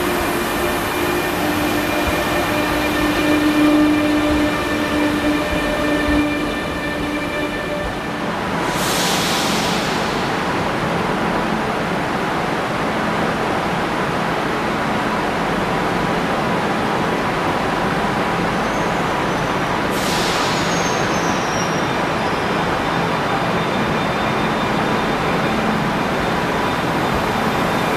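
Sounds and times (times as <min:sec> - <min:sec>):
train rumbling into station: 0:00.0 - 0:27.9
air hisses: 0:08.5 - 0:10.6, 0:20.0 - 0:21.4.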